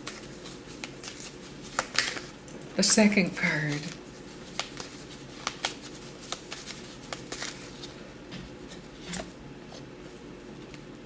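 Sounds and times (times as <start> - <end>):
cards clicking and rustling: 0.0 - 2.4, 3.5 - 8.0.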